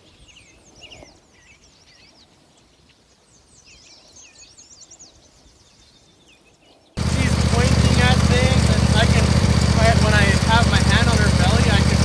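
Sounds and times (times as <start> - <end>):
small songbirds chirping: 0.0 - 12.0.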